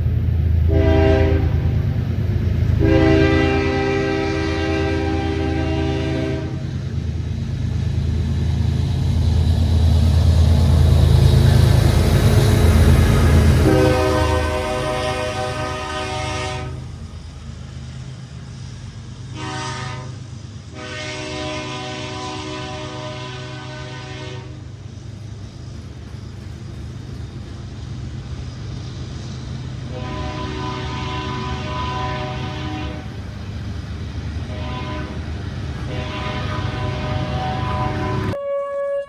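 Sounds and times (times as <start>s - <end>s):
locomotive engine rumbling: 0.0s - 39.0s
locomotive horn blasts: 0.7s - 1.8s, 2.8s - 6.7s, 13.6s - 16.9s, 19.3s - 24.7s, 29.9s - 33.2s, 34.5s - 35.3s, 35.9s - 39.0s.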